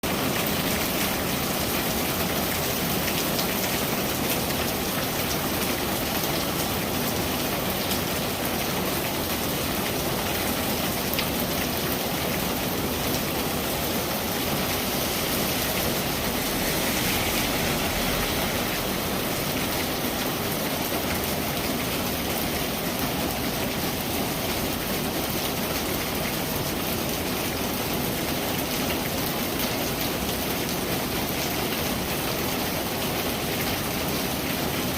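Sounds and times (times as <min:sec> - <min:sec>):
rain falling on a surface: 0:00.0 - 0:34.9.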